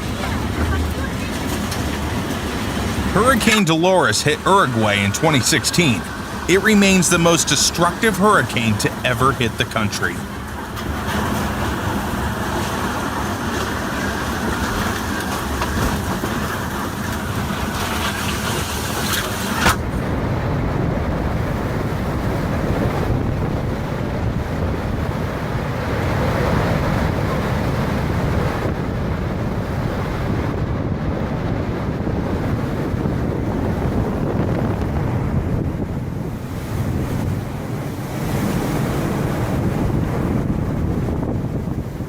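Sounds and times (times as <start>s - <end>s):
storm wind buffeting microphone: 19.8s - 42.0s.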